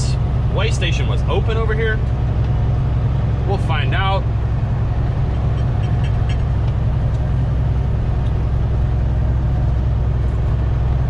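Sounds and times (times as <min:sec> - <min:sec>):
road noise: 0:00.0 - 0:11.0
truck engine drone: 0:00.0 - 0:11.0.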